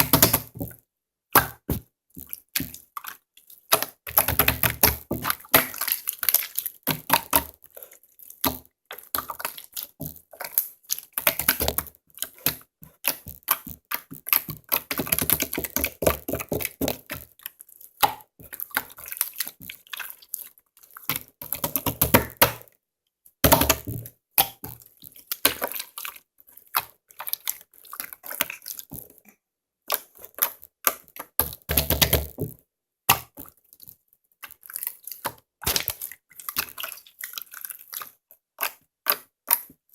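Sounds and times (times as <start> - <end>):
hands squishing slime: 0.0 - 22.7, 23.4 - 39.9.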